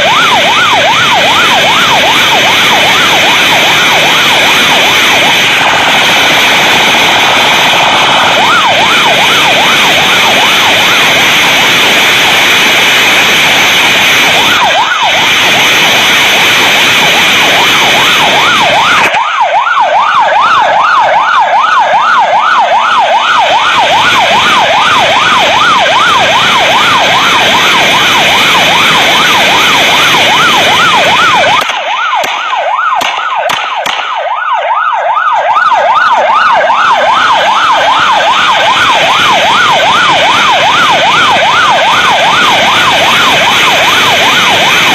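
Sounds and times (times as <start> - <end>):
rushing vehicle and wind noise: 0.0 - 19.2
police siren yelping: 0.0 - 44.9
sharp clicks: 31.5 - 34.2.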